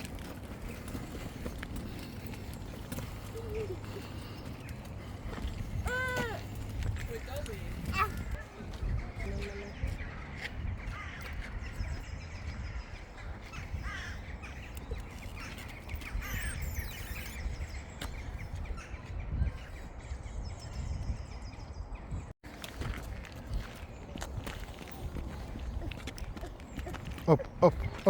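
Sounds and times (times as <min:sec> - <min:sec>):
harsh caw-like bird calls: 0:10.0 - 0:12.0, 0:12.9 - 0:17.4.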